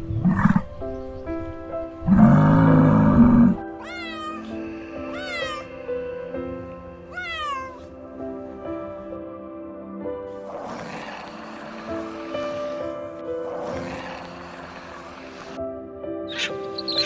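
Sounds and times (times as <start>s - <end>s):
soft background music: 0.0s - 17.0s
cat meowing: 3.8s - 5.7s.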